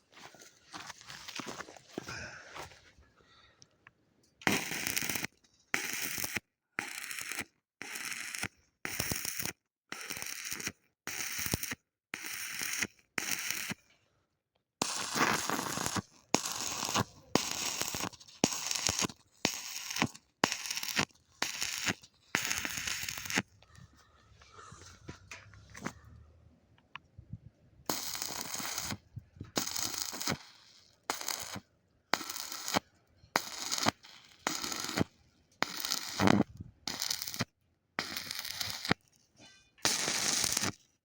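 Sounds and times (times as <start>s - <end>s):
welding arc crackling: 4.4s - 13.8s, 14.8s - 23.5s, 27.9s - 39.1s, 39.8s - 40.8s.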